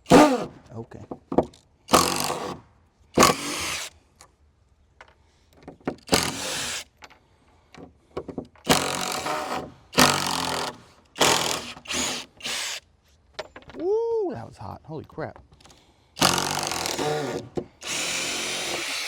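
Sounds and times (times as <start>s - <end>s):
power drill backing out screws: 1.5s - 2.6s, 3.2s - 3.9s, 5.8s - 7.2s, 7.8s - 12.8s, 15.6s - 19.0s.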